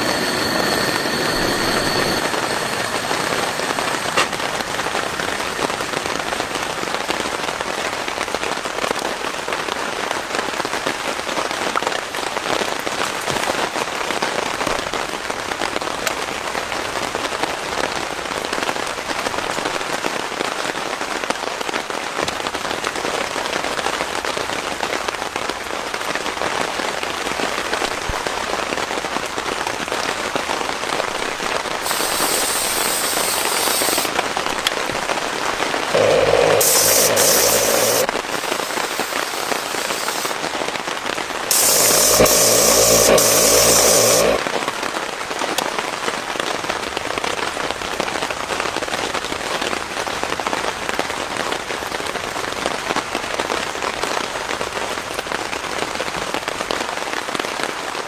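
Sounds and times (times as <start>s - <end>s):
heavy rain falling: 31.2s - 44.6s.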